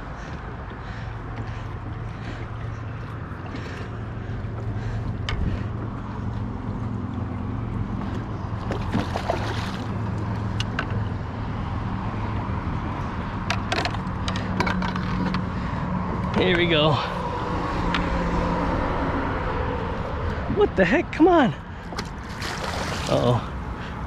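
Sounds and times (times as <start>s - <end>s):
boat motor humming: 0.0s - 24.0s
wind and water noise: 0.0s - 24.0s
clicks and knocks of gear: 13.4s - 15.5s.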